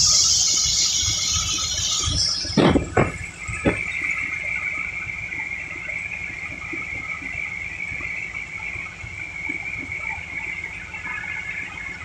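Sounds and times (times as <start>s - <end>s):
car engine idling: 0.0s - 12.0s
high engine whine: 0.0s - 12.0s.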